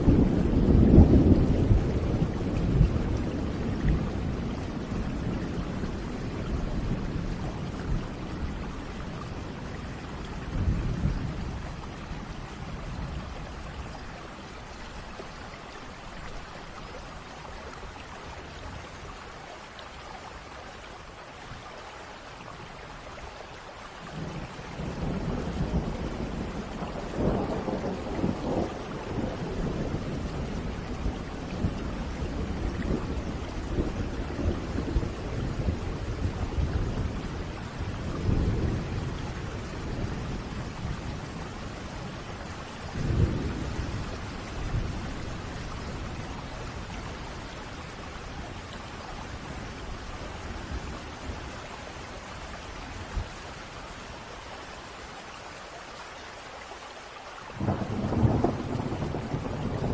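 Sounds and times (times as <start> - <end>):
rolling thunder: 0.0 - 14.0, 24.2 - 48.6, 57.6 - 59.9
steady rain: 0.0 - 59.9
thunder clap: 57.6 - 59.9.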